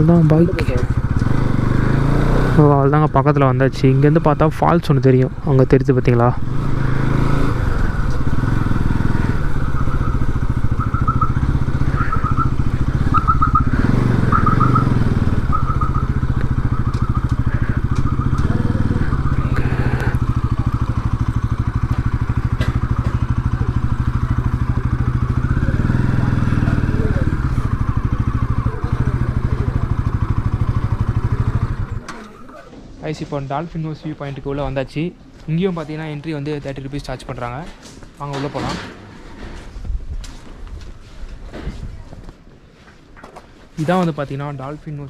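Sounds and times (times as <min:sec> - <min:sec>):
motorcycle engine running: 0:00.0 - 0:32.8.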